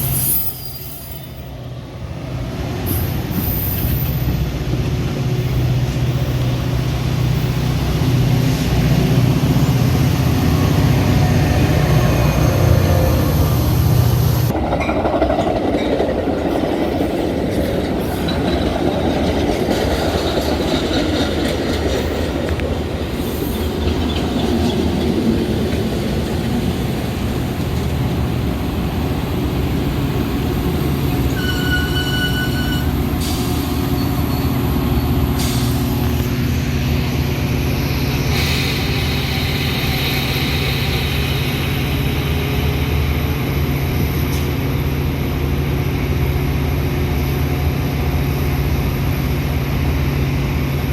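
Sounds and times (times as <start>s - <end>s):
train wheel squeal: 0.0s - 1.5s, 2.9s - 4.5s, 23.2s - 25.2s, 31.2s - 36.0s
rumble of moving rail cars: 0.0s - 50.9s.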